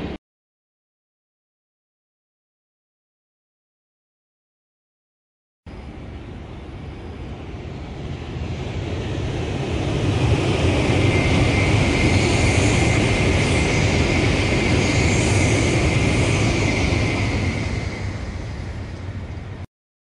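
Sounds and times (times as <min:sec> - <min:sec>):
high-speed train passing: 0:00.0 - 0:00.2, 0:05.7 - 0:19.7.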